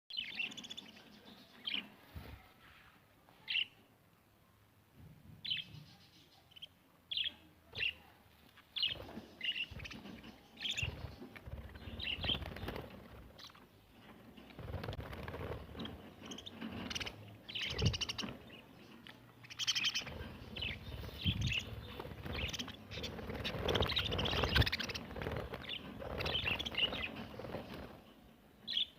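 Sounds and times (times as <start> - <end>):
low noisy rumble: 8.9 - 28.7
budgerigars chirping: 15.8 - 18.6.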